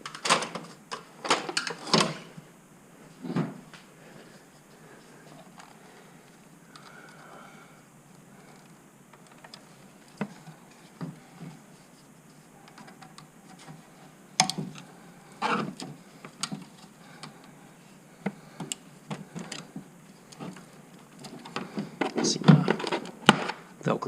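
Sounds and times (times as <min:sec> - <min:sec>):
plastic clatter: 0:18.2 - 0:23.6.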